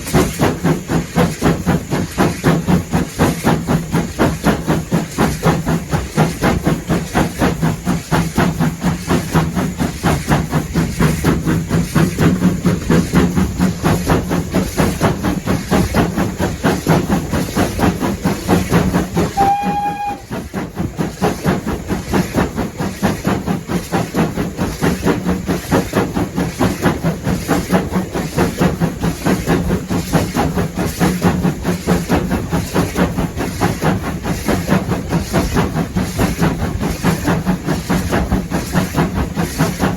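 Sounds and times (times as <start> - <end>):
steam locomotive exhaust beating: 0.0 - 39.9
steam whistle blast: 19.3 - 20.4.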